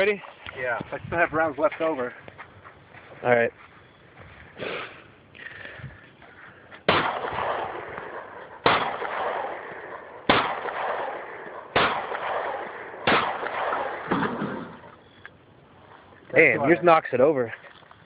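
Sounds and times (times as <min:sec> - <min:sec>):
pistol shots with echo: 0:06.9 - 0:15.0.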